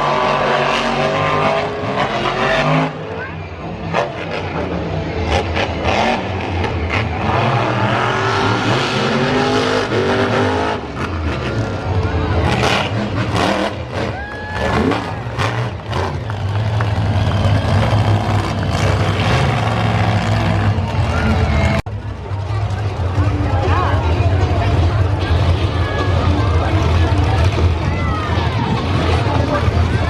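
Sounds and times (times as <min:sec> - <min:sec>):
monster truck engine revving: 0:00.0 - 0:30.0.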